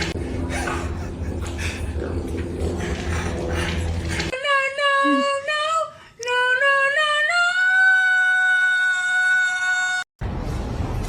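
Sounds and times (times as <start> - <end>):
high singing voice: 4.3 - 10.0.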